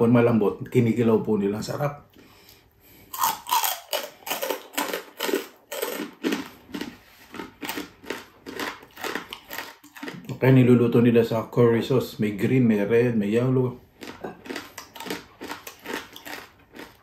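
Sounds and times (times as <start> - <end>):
person chewing crunchy food: 2.1 - 10.4, 13.8 - 17.0.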